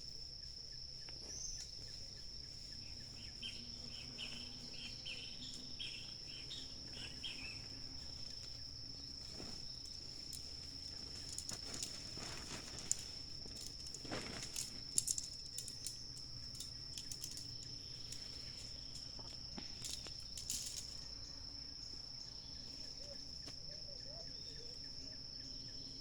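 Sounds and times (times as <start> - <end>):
high-pitched cricket trill: 0.0 - 26.0
short chirping calls: 2.8 - 7.8.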